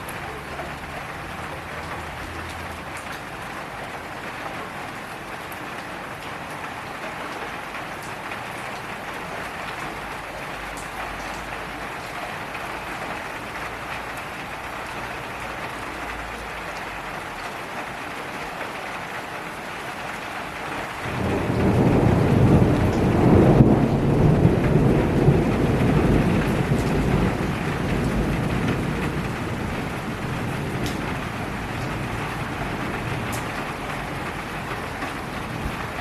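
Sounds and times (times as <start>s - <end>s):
steady rain falling: 0.0s - 36.0s
rolling thunder rumble: 20.9s - 36.0s.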